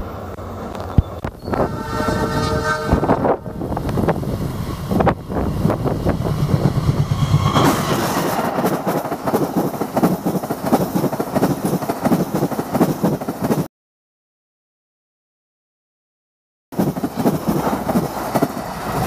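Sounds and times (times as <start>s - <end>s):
train wheels clattering: 4.9s - 13.7s, 16.8s - 19.0s.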